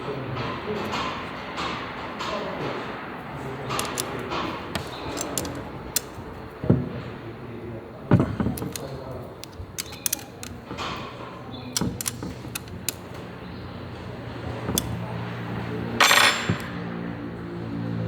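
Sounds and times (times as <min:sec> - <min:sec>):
metallic tool clicks and knocks: 0:03.7 - 0:06.3, 0:08.4 - 0:10.8, 0:11.7 - 0:13.2, 0:14.6 - 0:15.0, 0:16.0 - 0:16.8.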